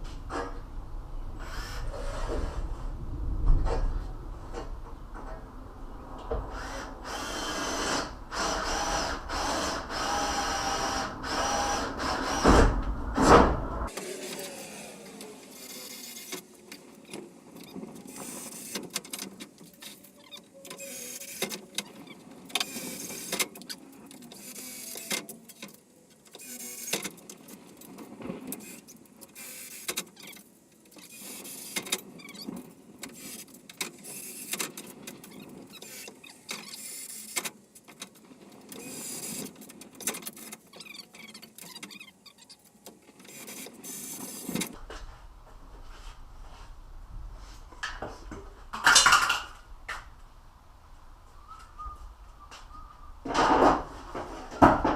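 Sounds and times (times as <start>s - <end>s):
electric drill drilling metal: 6.5s - 12.6s.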